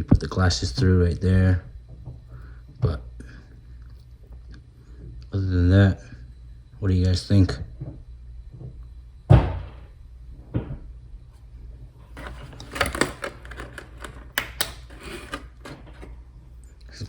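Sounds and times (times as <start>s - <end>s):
plastic clicks: 12.2s - 16.1s
plastic packaging rustling: 12.2s - 16.2s.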